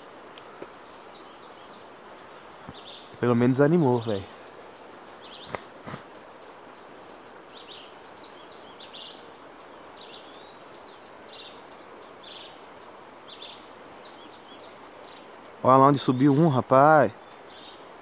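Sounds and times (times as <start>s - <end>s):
steady background hiss: 0.0s - 18.0s
birds chirping and whistling: 0.4s - 6.5s, 7.1s - 18.0s.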